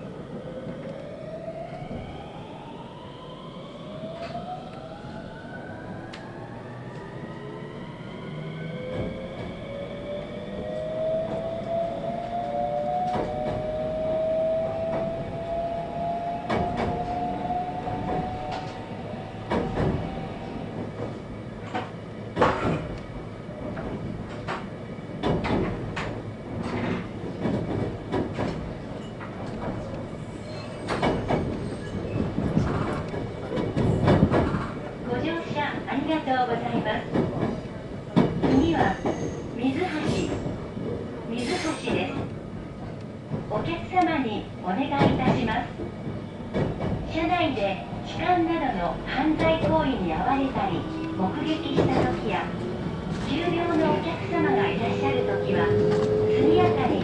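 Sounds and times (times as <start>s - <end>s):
wheels clacking over rail joints: 49.2s - 57.0s.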